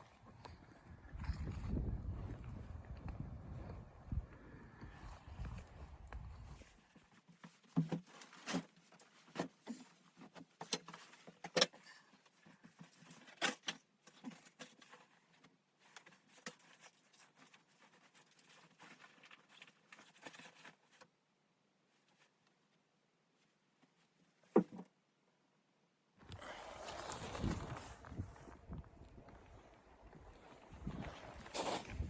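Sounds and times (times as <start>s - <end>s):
faint rustling: 6.4s - 21.2s.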